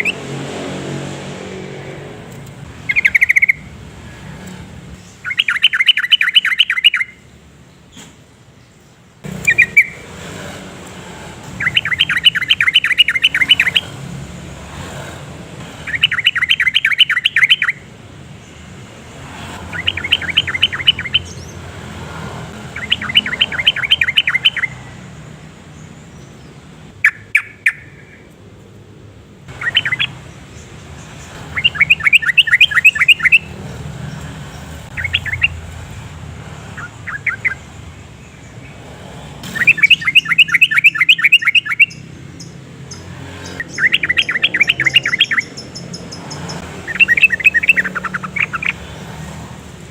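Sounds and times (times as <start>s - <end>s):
bird singing bubbly chirps: 2.8s - 3.7s, 5.2s - 7.2s, 9.5s - 10.0s, 11.6s - 13.9s, 15.8s - 17.8s, 19.7s - 21.5s, 22.6s - 24.9s, 27.0s - 28.2s, 29.6s - 34.2s, 34.9s - 35.6s, 36.8s - 37.7s, 39.6s - 42.6s, 43.4s - 48.8s.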